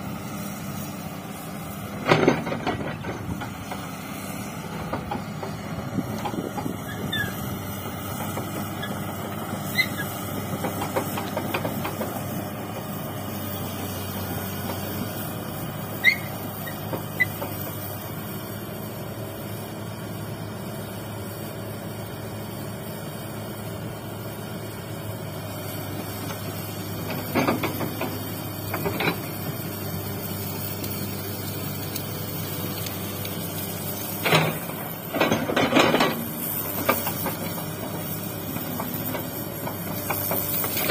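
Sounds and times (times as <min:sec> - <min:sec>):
excavator diesel engine running: 0:00.0 - 0:40.9
high machine squeaks: 0:06.8 - 0:07.4, 0:09.6 - 0:10.2, 0:15.9 - 0:17.5.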